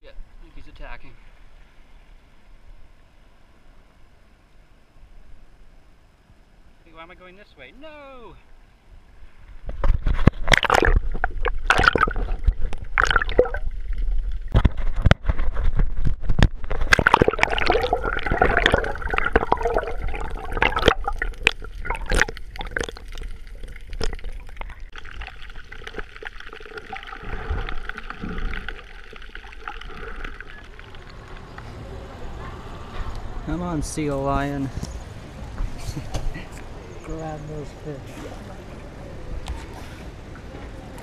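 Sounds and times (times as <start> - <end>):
water sloshing and gurgling: 9.1 - 32.3, 35.0 - 41.0
knocks and splashes: 9.7 - 31.5.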